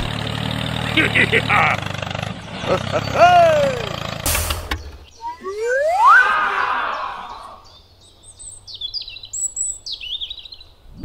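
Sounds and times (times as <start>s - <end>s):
loud rising tone: 3.5s - 7.6s
burst of noise: 4.2s - 5.0s
high bird chirps: 4.6s - 10.8s.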